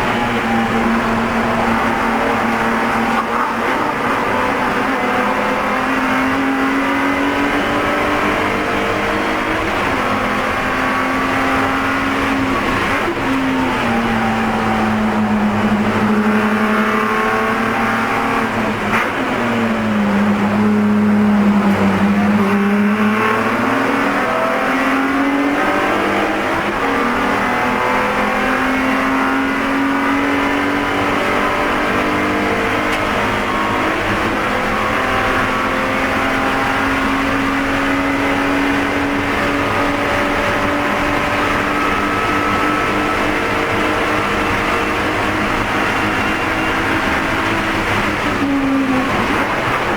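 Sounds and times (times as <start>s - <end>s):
race car engine at high revs: 0.0s - 49.9s.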